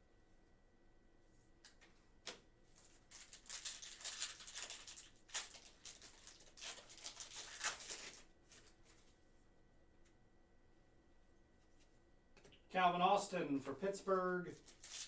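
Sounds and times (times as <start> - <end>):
cards crinkling and rustling: 1.7 - 9.2, 14.0 - 15.0.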